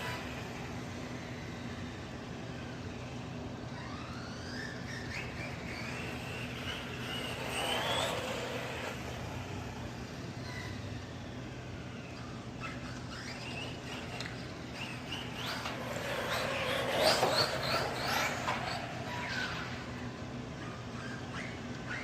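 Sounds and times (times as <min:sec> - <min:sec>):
electric motor whining: 0:05.6 - 0:10.2.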